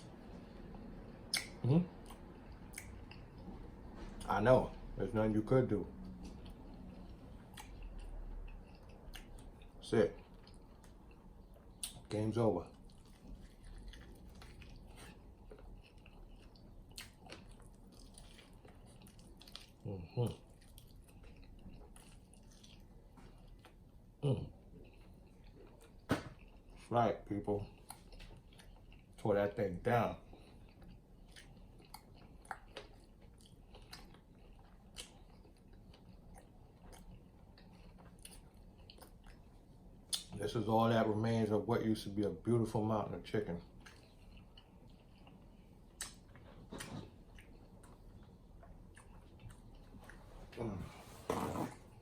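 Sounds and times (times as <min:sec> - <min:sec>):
faint chewing: 0:00.0 - 0:04.9, 0:05.6 - 0:40.4, 0:42.2 - 0:52.0
wet mouth clicks: 0:01.3 - 0:03.3, 0:45.9 - 0:47.5.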